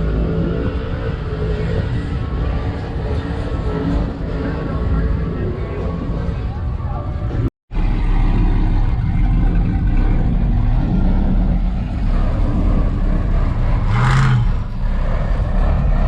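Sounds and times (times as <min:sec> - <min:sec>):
engine revving during burnout: 0:07.8 - 0:16.0.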